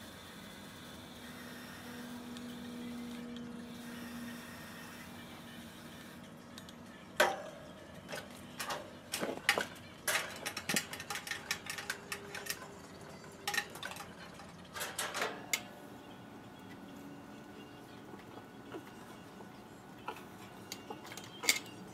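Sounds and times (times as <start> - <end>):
metallic clicks and clanks of tools: 6.4 - 15.7, 20.0 - 21.9.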